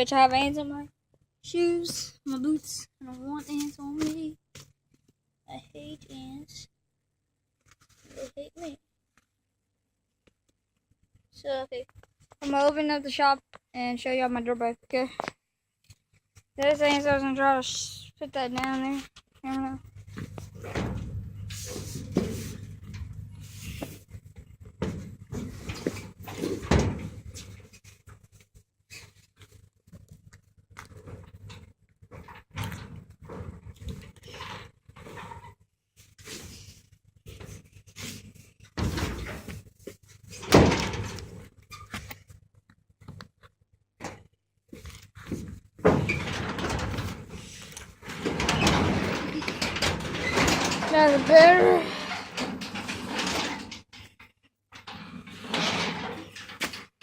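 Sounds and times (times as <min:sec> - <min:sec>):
door scraping: 0:20.0 - 0:27.8, 0:45.3 - 0:54.2, 0:54.8 - 0:57.0
door clunks and knocks: 0:20.2 - 0:21.2, 0:24.8 - 0:27.3, 0:40.4 - 0:41.4, 0:45.4 - 0:47.3.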